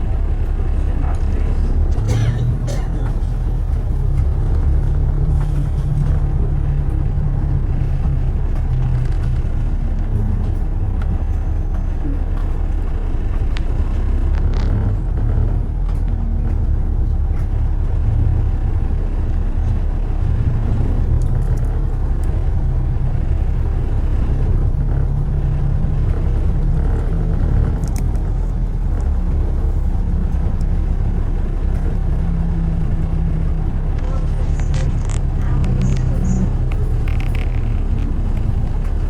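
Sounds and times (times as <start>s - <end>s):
city traffic rumble: 0.0s - 39.0s
faint clicks: 19.4s - 39.0s.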